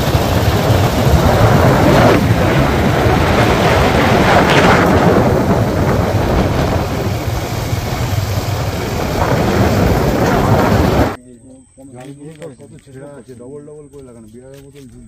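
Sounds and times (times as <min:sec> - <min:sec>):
motorcycle engine running: 0:00.0 - 0:11.2
wind rush over microphone: 0:00.0 - 0:11.2.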